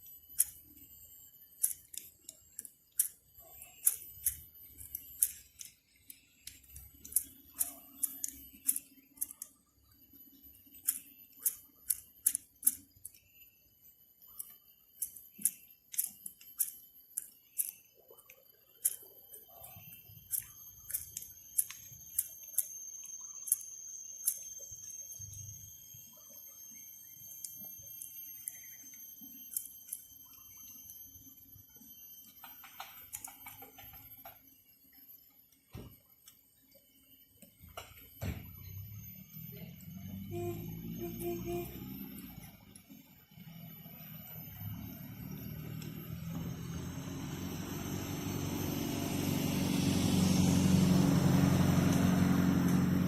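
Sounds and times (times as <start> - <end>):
sharp clicks: 0.0 - 13.4, 14.2 - 25.5
high-pitched whining tones: 0.0 - 53.0.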